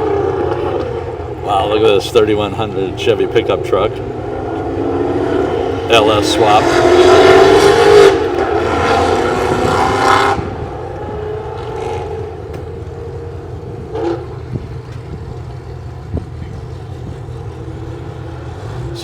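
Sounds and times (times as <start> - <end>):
car engine running: 0.0 - 19.0
low rumble of engines: 0.0 - 19.0.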